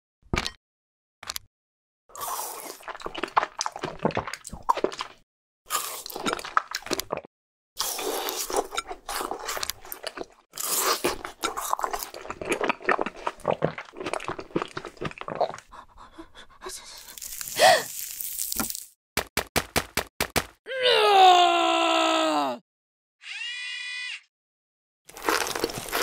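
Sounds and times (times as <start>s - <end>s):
crunchy chewing of ice pop: 2.1s - 15.7s, 25.1s - 26.0s.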